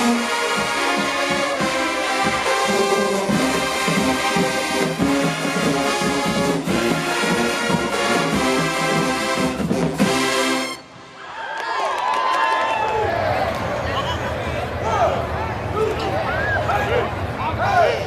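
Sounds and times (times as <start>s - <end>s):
brass marching band playing: 0.0s - 11.2s
drum hits: 0.5s - 10.4s.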